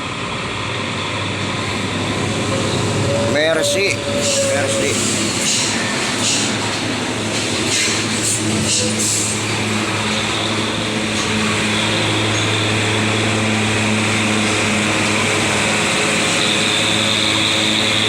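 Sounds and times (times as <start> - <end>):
road noise: 0.0 - 18.0.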